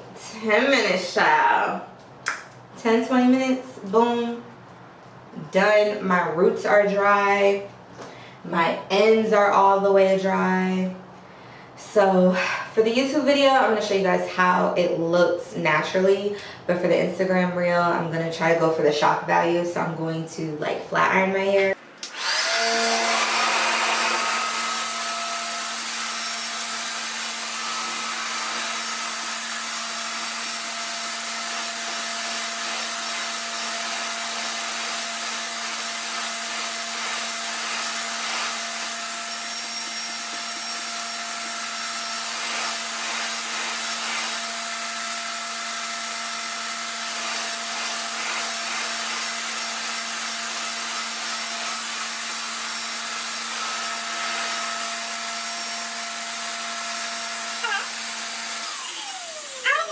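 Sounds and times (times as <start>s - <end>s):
hair dryer motor hum: 21.7s - 59.9s.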